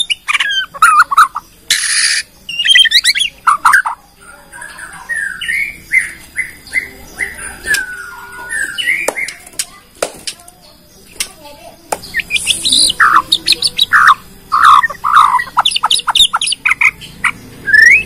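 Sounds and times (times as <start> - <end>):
bird harsh rasp: 0.0 - 3.9
bird whistled phrases: 0.0 - 9.4, 12.0 - 18.0.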